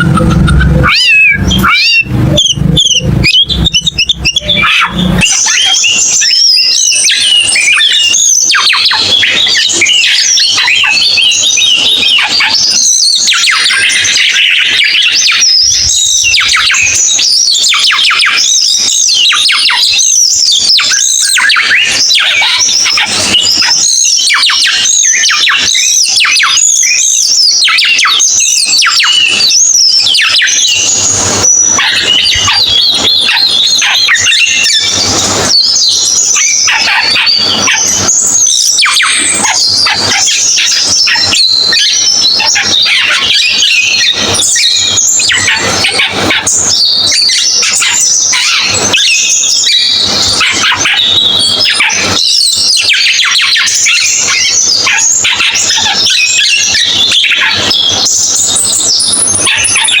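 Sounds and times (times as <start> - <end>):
bird singing rapid chirps and trills: 0.0 - 60.0.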